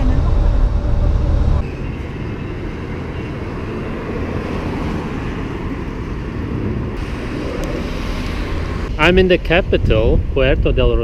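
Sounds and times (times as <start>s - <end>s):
steady low rumble: 0.0s - 3.5s, 5.3s - 11.0s
wind noise on microphone: 6.3s - 11.0s.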